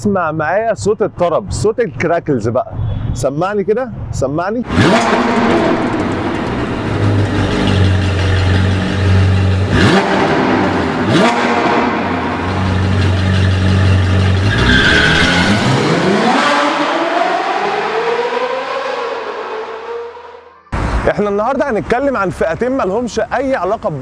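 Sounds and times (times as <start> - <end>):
sports car engine revving: 4.6 - 20.3.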